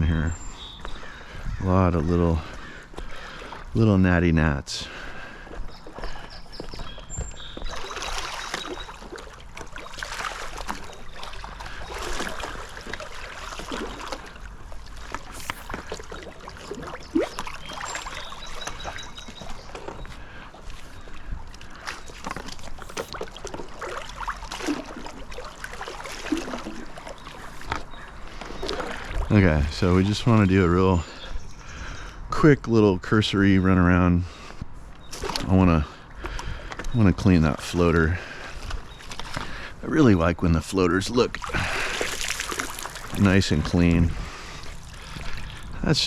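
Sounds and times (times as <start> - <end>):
pool net sweeping through water: 41.4 - 43.3.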